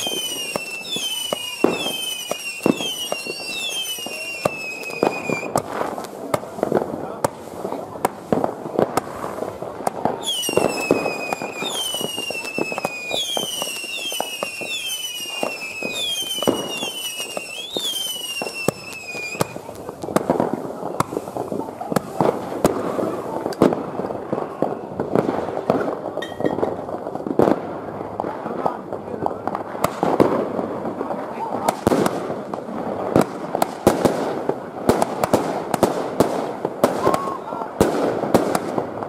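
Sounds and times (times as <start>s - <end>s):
falling firework whistles: 0.0s - 6.1s, 10.1s - 19.7s, 36.8s - 37.6s
fireworks bangs and crackles: 0.0s - 39.0s.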